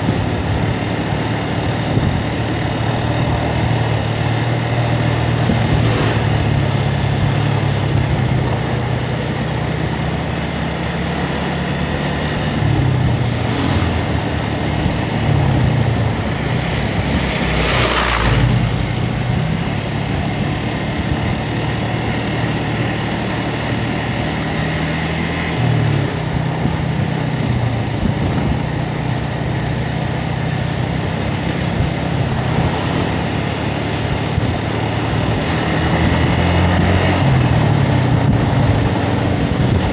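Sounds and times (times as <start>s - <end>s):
loud rush: 0.0s - 9.0s, 10.8s - 22.2s
motorcycle engine running: 0.0s - 39.9s
wind and road noise: 0.0s - 39.9s.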